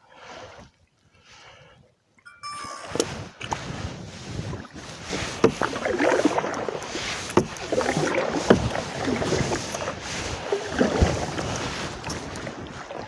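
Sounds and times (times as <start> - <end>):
water splashing around paddle: 3.6 - 13.0.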